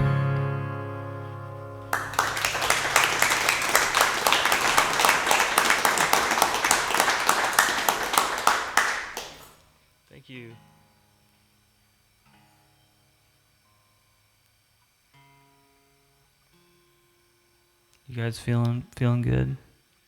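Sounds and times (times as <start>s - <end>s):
acoustic guitar chord ringing: 0.0s - 2.9s
audience applause: 1.8s - 9.6s.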